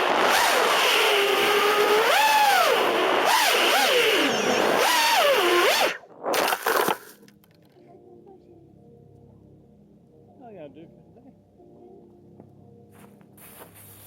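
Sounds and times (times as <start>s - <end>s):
drone motors whining: 0.0s - 7.1s.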